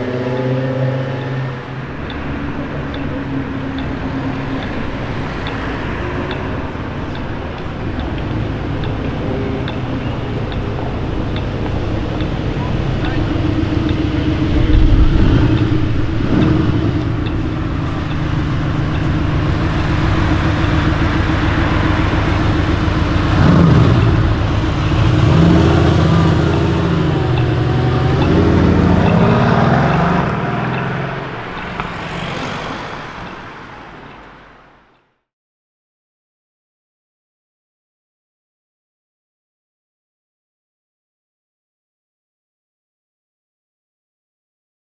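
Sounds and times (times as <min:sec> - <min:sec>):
car engine accelerating: 0:00.0 - 0:34.7.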